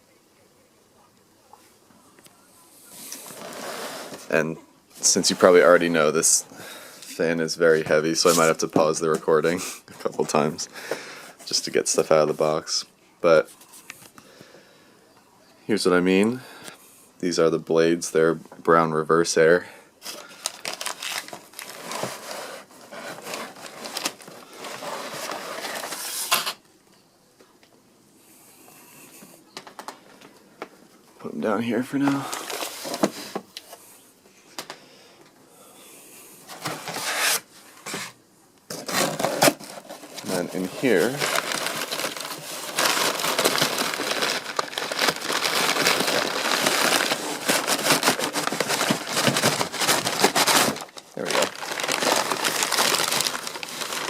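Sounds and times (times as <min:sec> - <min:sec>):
fan blades scraping cardboard box: 0:03.3 - 0:04.3
packaging rustling and crinkling: 0:20.0 - 0:26.6, 0:31.9 - 0:33.8, 0:38.7 - 0:54.0.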